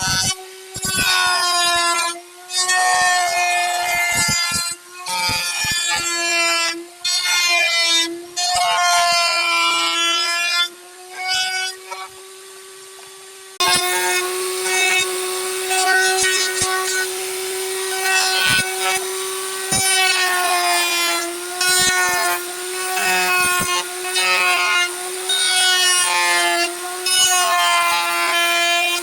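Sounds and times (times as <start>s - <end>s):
tool scraping spinning wood: 0.0s - 7.6s, 13.6s - 29.0s
lathe motor whine: 12.1s - 29.0s.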